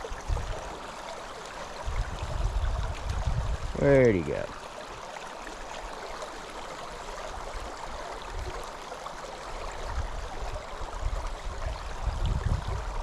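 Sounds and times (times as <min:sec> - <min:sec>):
wind on microphone: 0:00.0 - 0:00.7, 0:01.8 - 0:04.4, 0:09.8 - 0:13.0
flowing river water: 0:00.0 - 0:13.0.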